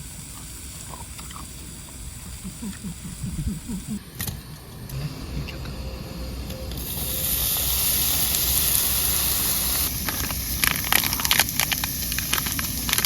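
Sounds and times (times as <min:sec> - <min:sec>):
gas flame hissing: 0:00.0 - 0:13.0
fat crackling and popping: 0:06.7 - 0:13.0.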